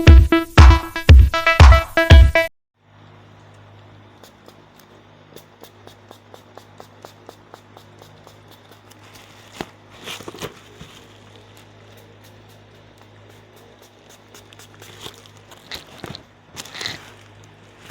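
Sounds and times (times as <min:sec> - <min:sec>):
low electrical hum: 0:02.8 - 0:17.9
packaging rustling: 0:08.7 - 0:12.2, 0:13.8 - 0:17.9.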